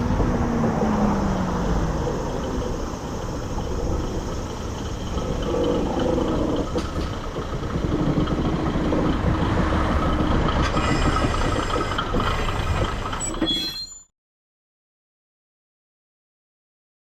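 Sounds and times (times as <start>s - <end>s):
railcar rumbling on track: 0.0s - 14.0s
wheel-on-rail noise: 0.0s - 14.0s
high wheel squeals: 0.9s - 14.1s.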